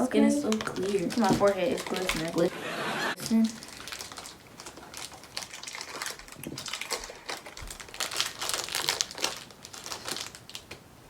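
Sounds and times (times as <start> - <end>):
wrapper crinkling: 0.0 - 2.6, 3.2 - 11.0.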